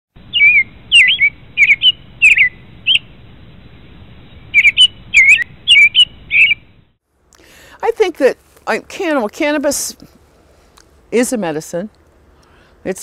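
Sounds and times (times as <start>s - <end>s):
small songbird chirping: 0.2s - 6.8s.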